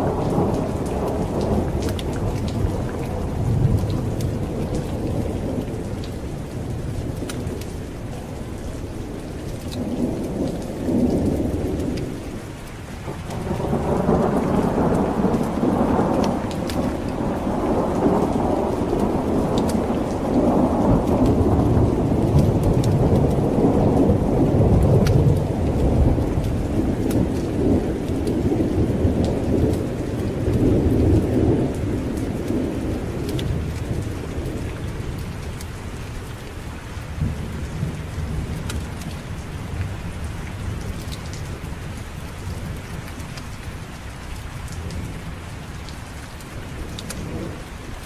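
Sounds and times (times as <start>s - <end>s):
thunder rolling: 0.0s - 7.6s, 13.1s - 35.6s
heavy rain: 0.0s - 48.0s.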